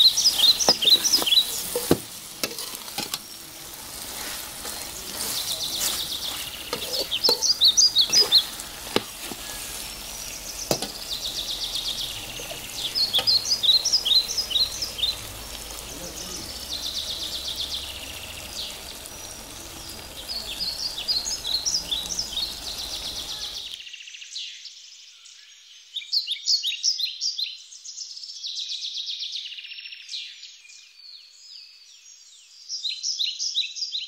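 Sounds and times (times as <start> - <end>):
steady hiss and hum: 0.0 - 23.8
small birds chirping: 0.0 - 34.0.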